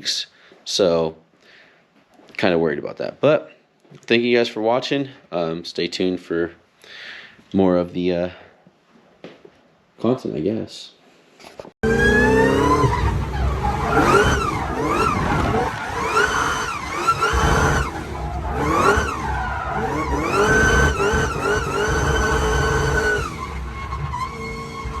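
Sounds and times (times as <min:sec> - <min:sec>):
car engine revving: 0:11.8 - 0:25.0.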